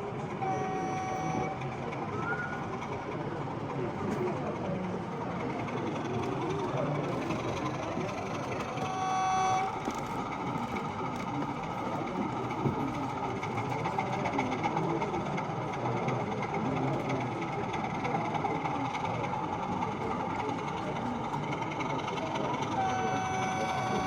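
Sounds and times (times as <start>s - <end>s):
background hubbub: 0.0s - 24.0s
high horn toot: 0.4s - 1.6s, 8.8s - 9.8s, 22.8s - 24.0s.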